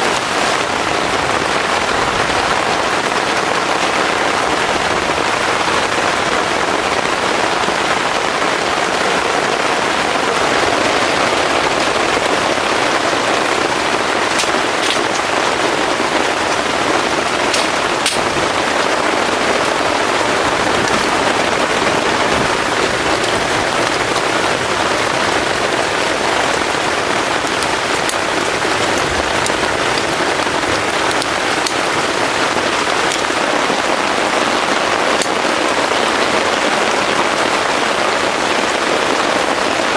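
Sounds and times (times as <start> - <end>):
heavy rain falling: 0.0 - 39.9
sharp drops ticking: 13.3 - 33.4.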